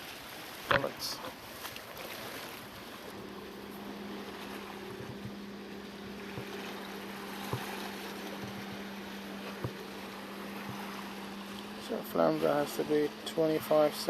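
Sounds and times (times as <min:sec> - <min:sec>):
wind and sea wash: 0:00.0 - 0:14.0
low hum: 0:00.7 - 0:14.0
short knocks: 0:06.1 - 0:08.8.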